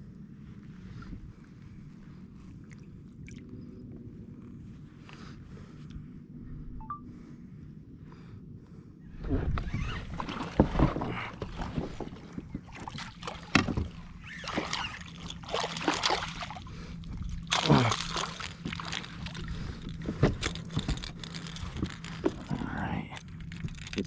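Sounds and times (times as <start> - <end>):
water splashing at kayak: 9.8 - 21.4.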